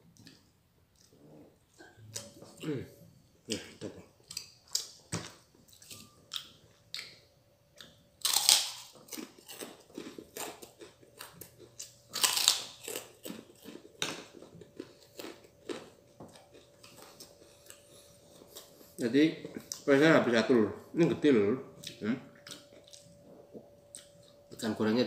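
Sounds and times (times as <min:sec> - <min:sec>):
person chewing wetly: 0:07.8 - 0:19.9, 0:21.8 - 0:24.6
crunchy bites: 0:08.2 - 0:17.0.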